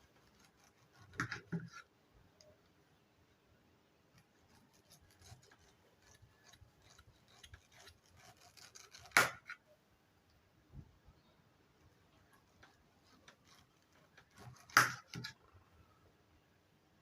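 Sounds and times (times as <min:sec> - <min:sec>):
knife cutting pineapple: 0:00.0 - 0:01.9, 0:04.1 - 0:09.6, 0:12.4 - 0:15.4.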